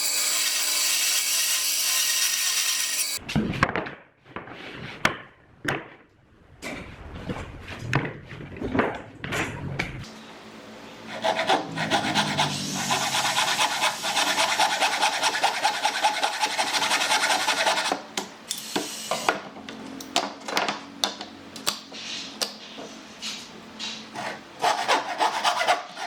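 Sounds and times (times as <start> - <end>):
hand tool rasping on wood: 11.1 - 17.9.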